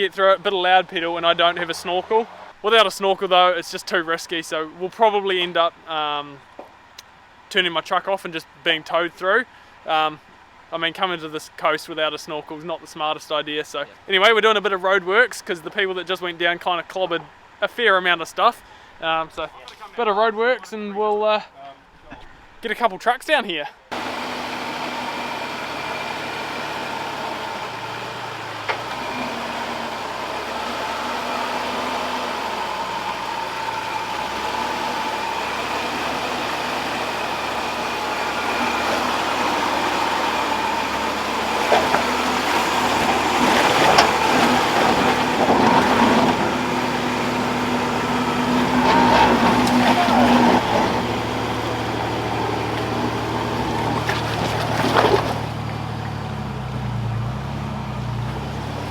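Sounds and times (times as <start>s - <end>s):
truck engine running at low speed: 23.9s - 58.9s.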